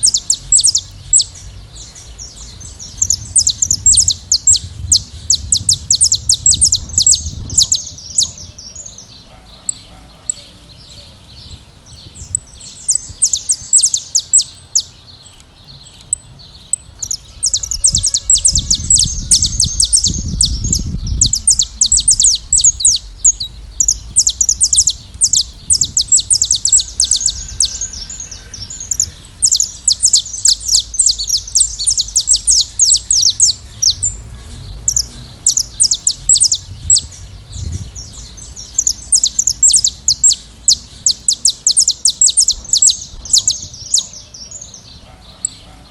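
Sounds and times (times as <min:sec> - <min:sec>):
low rumble: 0:00.0 - 0:08.8, 0:16.3 - 0:41.0
finches singing: 0:00.0 - 0:45.9.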